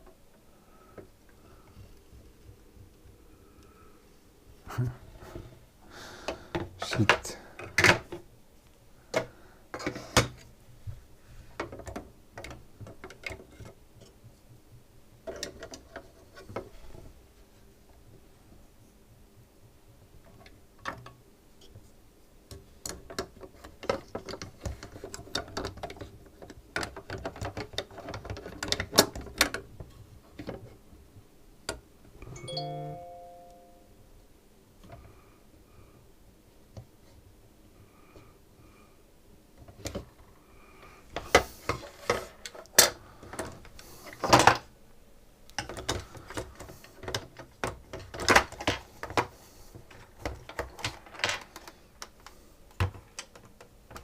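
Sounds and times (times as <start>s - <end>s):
clicks and taps of small parts: 22.5s - 29.6s
short ringing chime: 32.4s - 33.9s.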